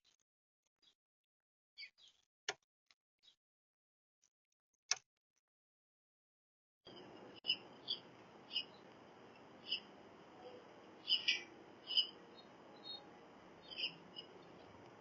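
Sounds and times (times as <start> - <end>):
bird chirping: 1.8 - 2.2, 6.9 - 15.0
bird giving short high calls: 11.0 - 12.2.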